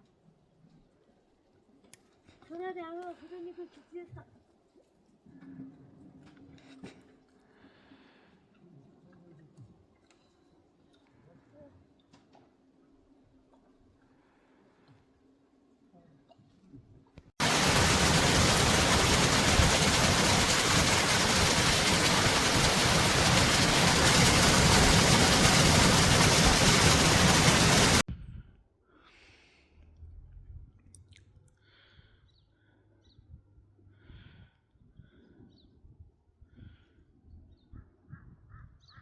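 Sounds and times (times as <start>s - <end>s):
heavy rain: 17.4s - 28.0s.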